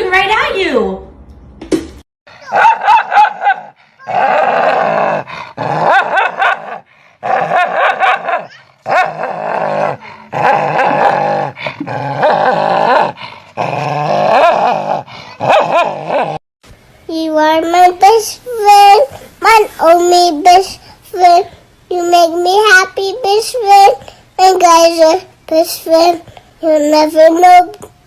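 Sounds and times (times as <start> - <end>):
dog grumbling and howling: 2.4 - 16.4.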